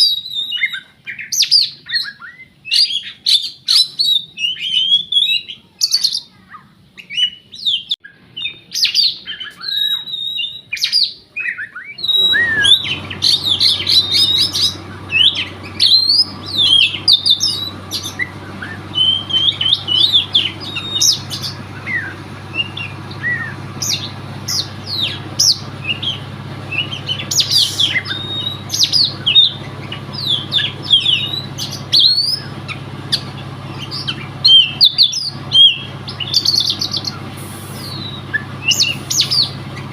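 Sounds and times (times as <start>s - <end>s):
bird singing whistles and chirps: 0.0s - 6.3s, 7.0s - 39.9s
low hum: 12.0s - 39.9s.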